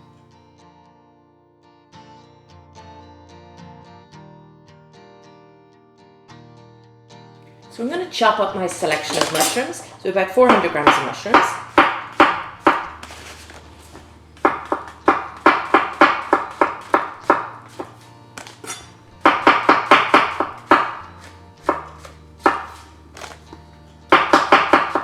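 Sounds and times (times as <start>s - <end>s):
background music: 7.4s - 25.0s
knife chopping on board: 8.6s - 25.0s.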